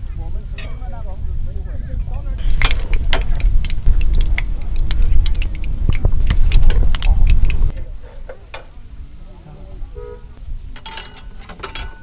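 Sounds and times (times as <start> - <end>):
wind buffeting microphone: 0.0 - 12.0
sharp snaps and clicks: 2.4 - 7.7.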